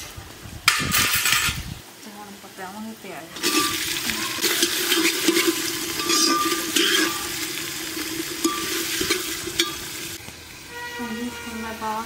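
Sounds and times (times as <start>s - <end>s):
spices sizzling in hot oil: 2.3s - 12.0s
metal spoon clinking on pot: 3.4s - 7.4s, 8.4s - 10.0s.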